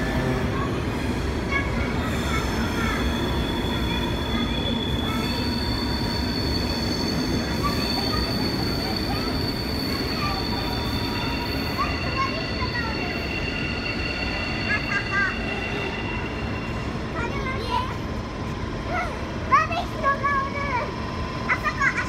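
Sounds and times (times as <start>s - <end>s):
train rumbling: 0.0s - 22.0s
wheels squealing: 1.6s - 17.1s.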